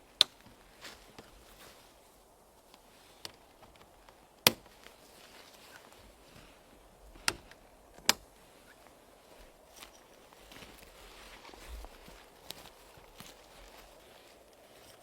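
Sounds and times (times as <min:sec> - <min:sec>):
faint steady hiss: 0:00.0 - 0:15.0
sharp clicks: 0:07.2 - 0:08.3.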